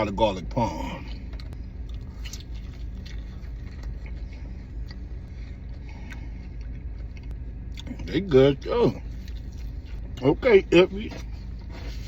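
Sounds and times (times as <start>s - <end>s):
chewing: 1.3s - 8.1s.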